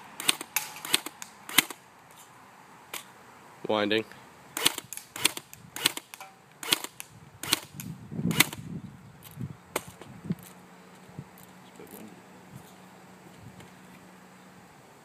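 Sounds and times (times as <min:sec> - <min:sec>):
airsoft rifle firing single shots: 0:00.2 - 0:01.8, 0:04.6 - 0:08.6.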